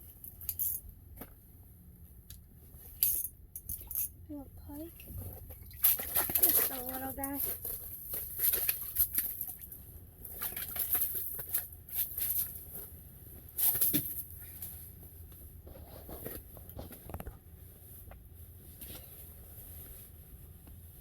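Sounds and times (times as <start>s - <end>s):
taps and scrapes handling fish: 5.0s - 9.6s.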